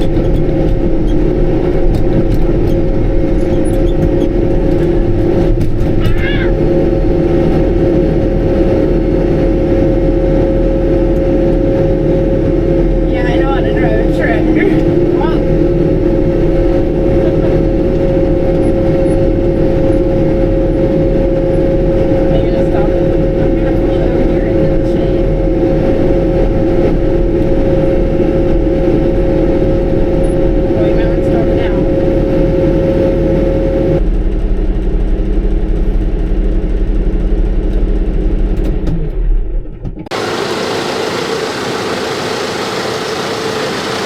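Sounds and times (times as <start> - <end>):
tractor diesel engine running: 0.0 - 38.5, 40.1 - 44.0
steady whine: 40.1 - 44.0.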